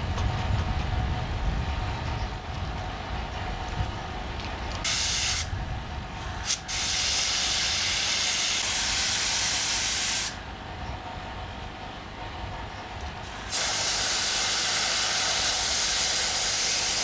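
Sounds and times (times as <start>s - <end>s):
compressed air gun hissing: 4.8s - 5.6s, 6.3s - 10.4s, 13.2s - 17.0s.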